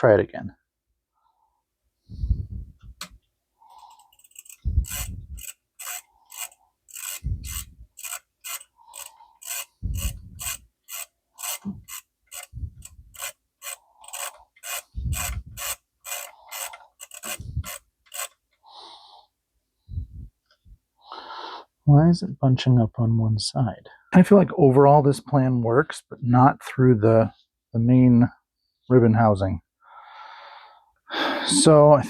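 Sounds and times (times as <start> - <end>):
typewriter ribbon ratcheting clicks: 4.0 - 18.4.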